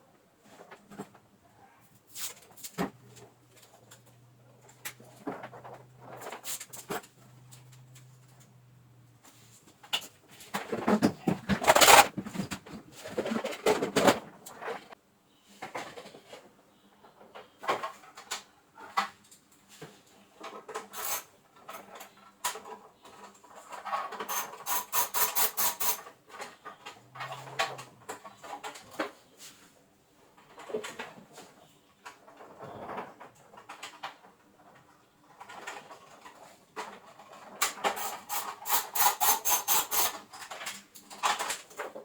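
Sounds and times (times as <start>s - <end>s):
rubbing and clattering on workbench: 9.2s - 15.0s, 35.4s - 42.0s.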